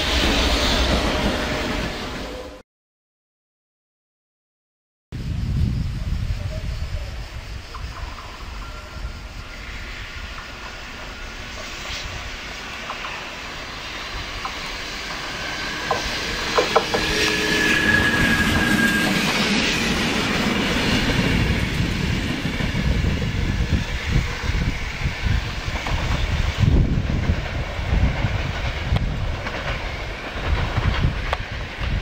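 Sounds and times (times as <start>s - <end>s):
train passing: 0.0s - 2.6s, 5.2s - 32.0s
wheel squeal: 8.1s - 22.2s
wheels clicking over rail joints: 14.4s - 17.1s.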